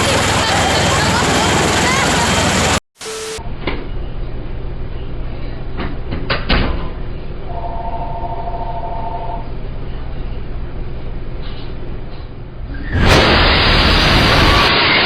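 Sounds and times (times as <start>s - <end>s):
vehicle engine drone: 0.0s - 2.8s, 7.0s - 15.0s.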